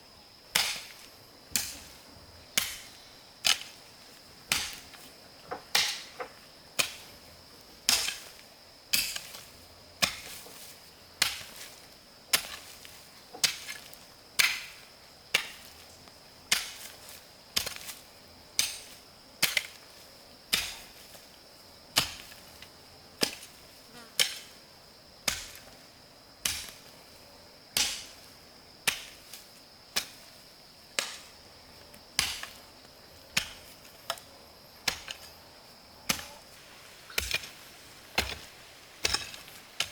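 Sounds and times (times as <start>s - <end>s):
high insect drone: 0.0s - 39.9s
hand tool chopping: 0.5s - 1.9s, 2.6s - 3.8s, 4.5s - 7.1s, 10.0s - 11.7s, 12.3s - 14.8s, 16.5s - 17.0s, 31.0s - 31.3s, 32.2s - 32.6s, 33.3s - 35.3s, 36.1s - 36.5s, 37.1s - 39.9s.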